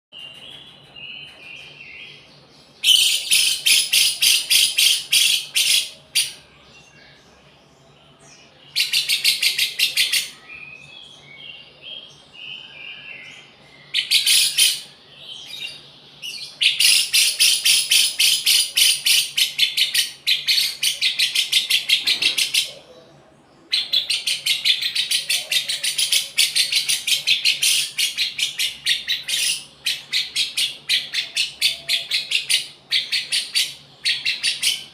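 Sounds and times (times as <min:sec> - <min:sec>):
lovebird singing shrill notes: 0:02.8 - 0:06.6, 0:12.6 - 0:22.7.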